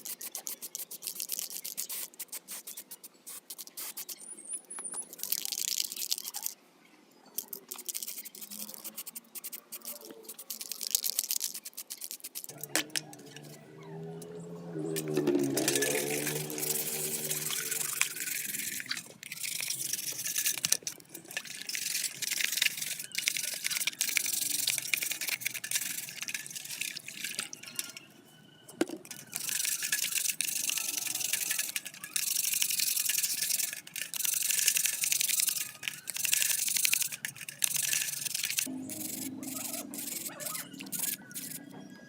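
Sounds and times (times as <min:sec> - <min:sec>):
brush scrubbing strokes: 0:07.9 - 0:28.0, 0:29.3 - 0:41.6.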